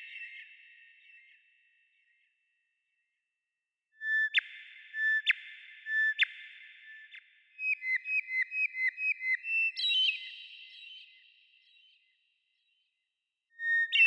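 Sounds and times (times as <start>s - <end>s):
songbird whistling: 13.6s - 14.0s.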